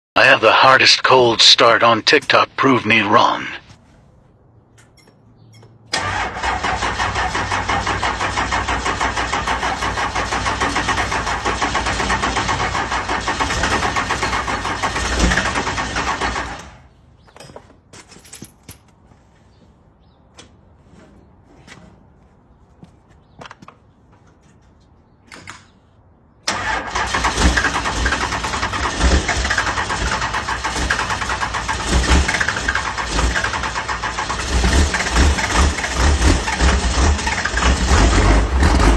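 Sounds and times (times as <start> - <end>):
car engine starting and running: 5.9 - 16.9, 26.4 - 38.9.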